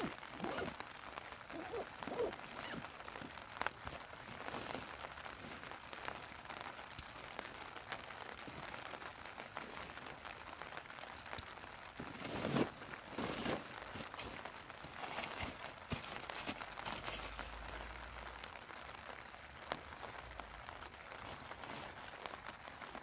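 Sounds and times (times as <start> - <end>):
backpack rustling: 0.0 - 0.8, 1.5 - 3.4, 4.3 - 5.6, 12.0 - 17.5, 21.2 - 22.2
rain pattering on tent: 0.0 - 23.0.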